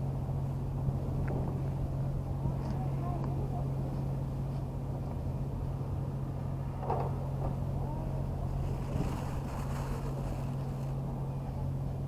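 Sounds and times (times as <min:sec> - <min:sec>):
low engine hum: 0:00.0 - 0:12.0
faint distant voices: 0:02.1 - 0:04.6, 0:06.9 - 0:12.0.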